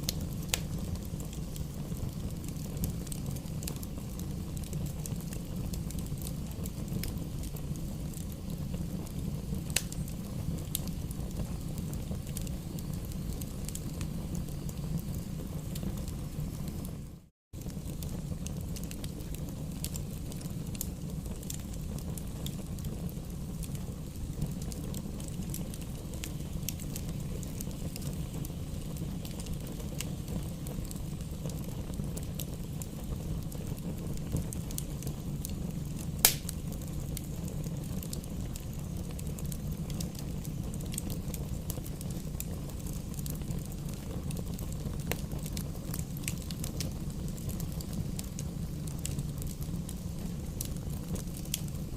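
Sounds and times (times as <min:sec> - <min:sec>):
fire crackling in a fireplace: 0:00.0 - 0:51.9
loud pop of fire: 0:09.6 - 0:11.6, 0:33.5 - 0:38.3.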